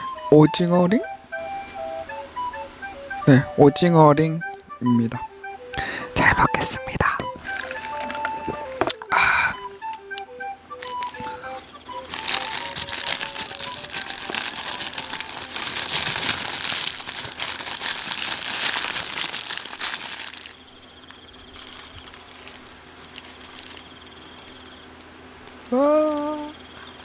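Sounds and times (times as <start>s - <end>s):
paper wrapping crinkling: 7.3s - 9.0s, 10.8s - 27.0s.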